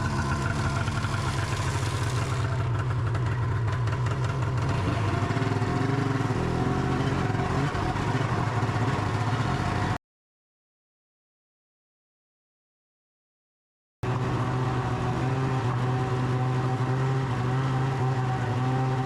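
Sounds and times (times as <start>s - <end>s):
snowmobile engine running: 0.0s - 10.0s.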